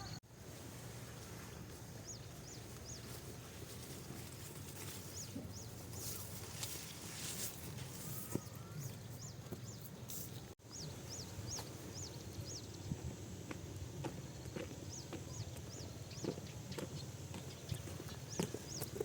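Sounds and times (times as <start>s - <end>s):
bird chirping: 8.0s - 13.0s, 14.4s - 19.0s.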